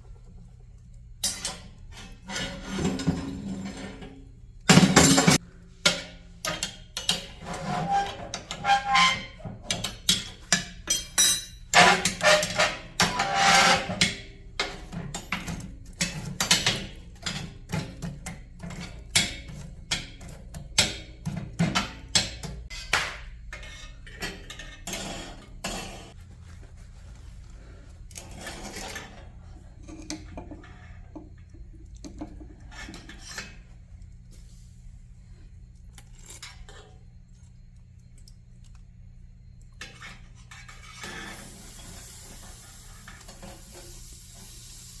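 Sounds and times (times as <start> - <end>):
metal cookware clinking: 1.2 - 2.2, 8.4 - 17.8
steady hiss: 41.0 - 45.0.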